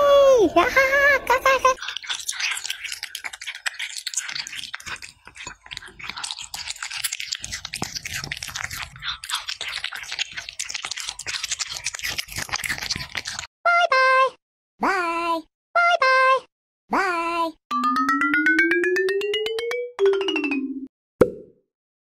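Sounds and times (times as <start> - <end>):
crunchy chewing: 1.8 - 13.5
electronic tones stepping down: 17.7 - 20.9.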